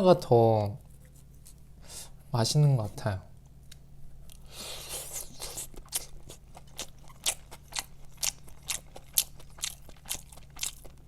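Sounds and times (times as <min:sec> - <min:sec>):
chewing crispy fried chicken: 0:04.9 - 0:11.0.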